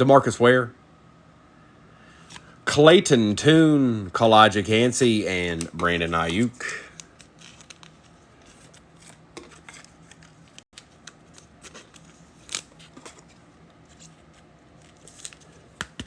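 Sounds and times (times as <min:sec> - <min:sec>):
faint steady hum: 0:00.0 - 0:16.0
cards and wrappers clicking and rustling: 0:05.5 - 0:16.0.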